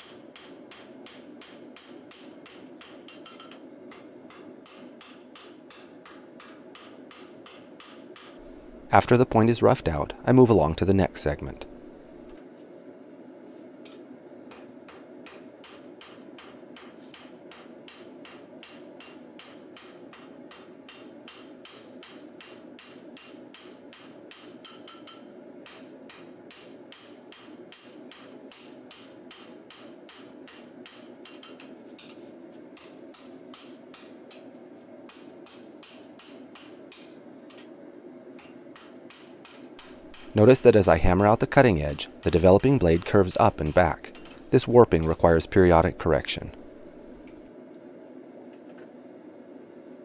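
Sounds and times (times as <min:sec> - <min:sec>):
hammer striking steel on anvil: 0:00.0 - 0:08.4, 0:14.5 - 0:32.2, 0:32.8 - 0:34.5, 0:35.1 - 0:37.7, 0:38.4 - 0:45.2
steady hum: 0:00.0 - 0:50.0.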